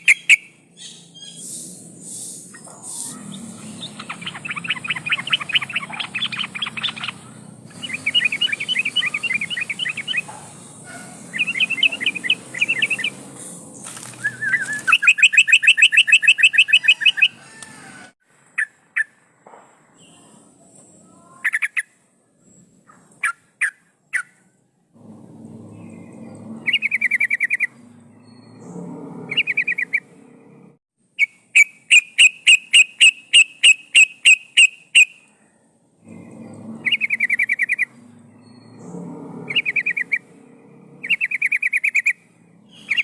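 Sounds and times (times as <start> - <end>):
bird chattering song: 0.0 - 17.4, 25.6 - 28.7, 29.3 - 30.1, 31.2 - 35.4, 36.0 - 40.3, 41.0 - 43.0.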